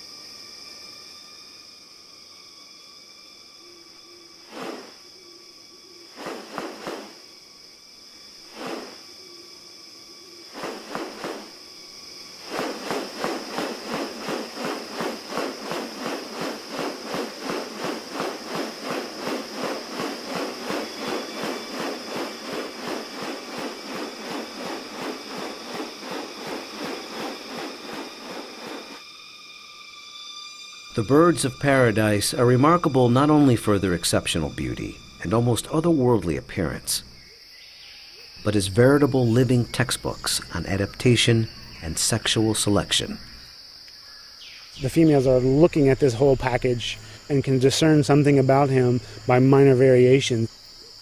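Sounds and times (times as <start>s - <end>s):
high insect drone: 0.0s - 51.0s
rapid raspy pulses: 12.4s - 29.0s.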